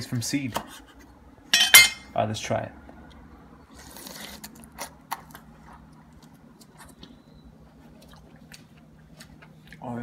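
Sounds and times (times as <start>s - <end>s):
wet chewing of fruit: 3.0s - 10.0s.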